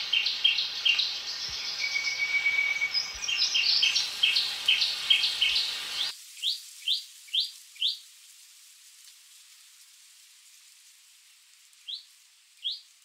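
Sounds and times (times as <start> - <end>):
background hiss: 0.0 - 13.0
bird singing high notes: 0.2 - 6.1.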